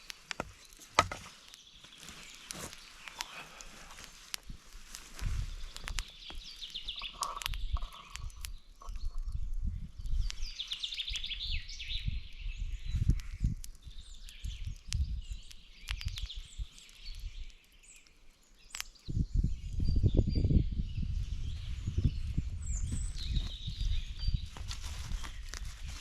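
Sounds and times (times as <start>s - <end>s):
small birds singing: 0.0s - 26.0s
sharp clicks: 5.7s - 9.4s, 13.1s - 19.0s.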